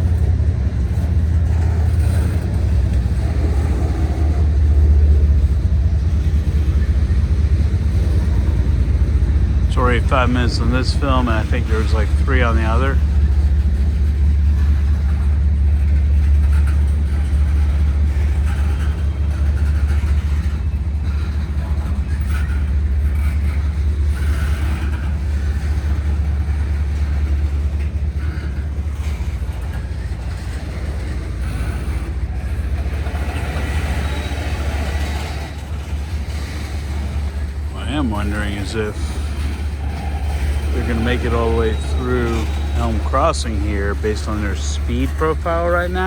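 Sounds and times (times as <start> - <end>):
freight train rolling past: 0.0 - 46.0
wheel squeaks and clanks: 12.8 - 46.0.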